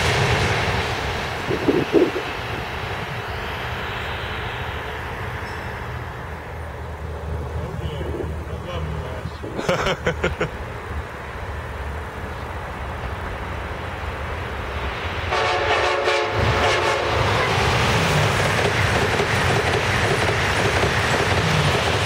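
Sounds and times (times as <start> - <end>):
train passing at speed: 0.0 - 22.0
train horn: 15.3 - 17.7.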